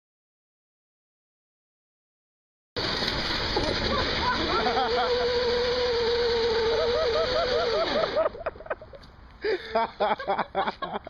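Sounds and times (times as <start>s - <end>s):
lawnmower crashing knocks: 2.8s - 5.7s
riding lawnmower engine running: 2.8s - 9.8s.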